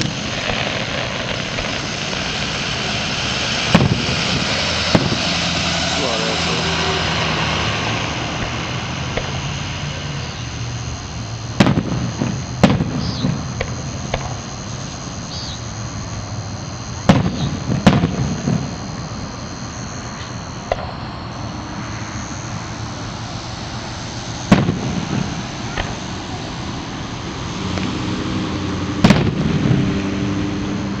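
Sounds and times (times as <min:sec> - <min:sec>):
faint fireworks pops: 0:00.0 - 0:02.6, 0:03.6 - 0:05.4, 0:07.8 - 0:09.6, 0:11.5 - 0:22.4, 0:24.4 - 0:26.2, 0:29.0 - 0:29.9
fireworks bangs with echo: 0:00.0 - 0:19.3, 0:20.0 - 0:21.9, 0:22.8 - 0:27.2, 0:29.0 - 0:30.7.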